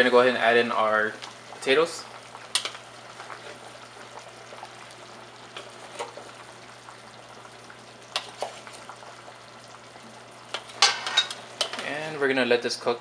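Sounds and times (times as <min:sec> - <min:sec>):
soup bubbling in a pot: 0:00.0 - 0:12.5.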